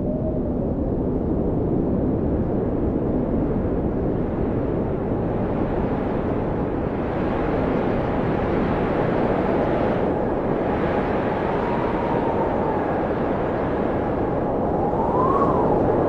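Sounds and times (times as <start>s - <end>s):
blizzard wind howling: 0.0s - 16.0s.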